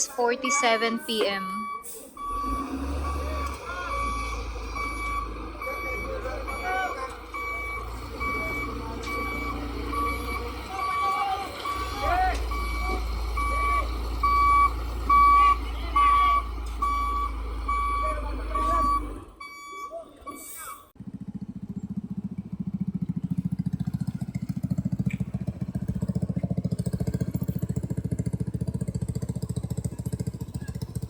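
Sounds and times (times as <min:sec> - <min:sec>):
low truck engine hum: 0:00.0 - 0:20.3, 0:20.9 - 0:31.0
truck reversing alarm beeping: 0:00.0 - 0:20.9, 0:21.7 - 0:31.0
small engine throbbing: 0:21.0 - 0:31.0.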